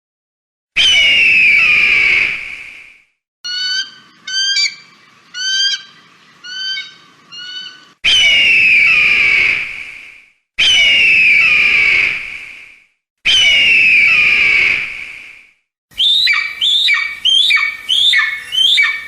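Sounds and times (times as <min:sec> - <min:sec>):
eagle screams: 0:00.8 - 0:02.4, 0:03.5 - 0:09.6, 0:10.6 - 0:12.1, 0:13.3 - 0:14.8, 0:16.0 - 0:19.0
eagle chirping calls: 0:03.5 - 0:09.1, 0:16.0 - 0:19.0.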